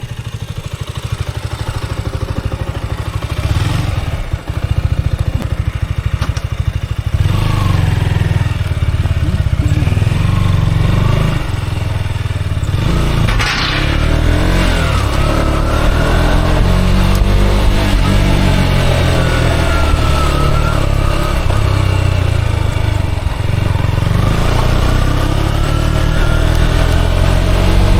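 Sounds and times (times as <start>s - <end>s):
motorcycle engine running: 0.0s - 27.9s.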